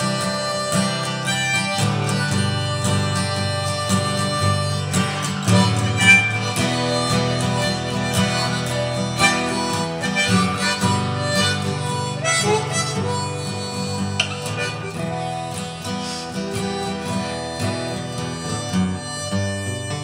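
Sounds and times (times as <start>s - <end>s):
harmonica melody: 0.0s - 20.0s
strummed acoustic guitar: 0.0s - 20.0s.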